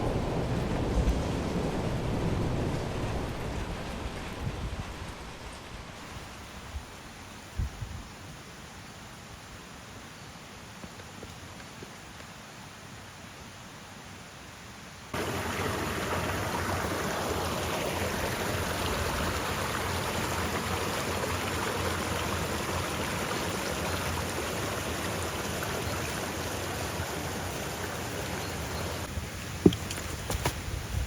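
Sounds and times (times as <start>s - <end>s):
rushing water: 0.0s - 7.4s, 15.1s - 31.0s.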